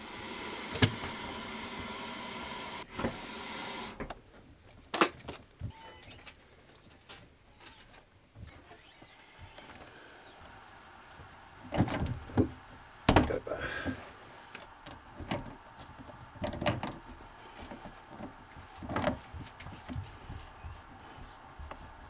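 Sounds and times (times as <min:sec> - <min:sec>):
water running through pipes: 0:00.0 - 0:04.1, 0:09.7 - 0:22.0.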